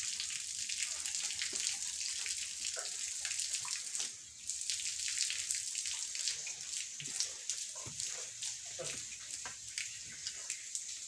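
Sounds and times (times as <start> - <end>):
running water hiss: 0.0 - 11.0.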